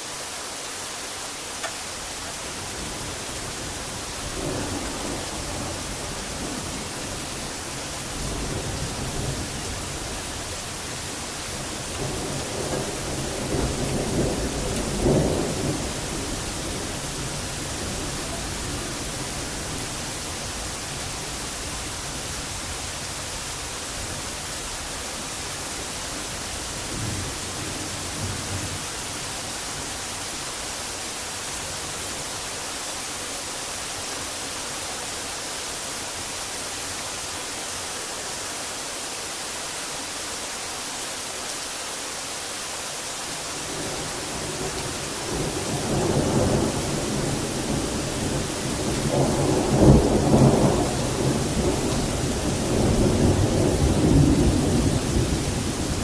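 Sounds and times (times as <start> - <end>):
heavy rain hissing: 0.0 - 56.0
thunder rumbling: 11.8 - 19.3, 43.7 - 56.0.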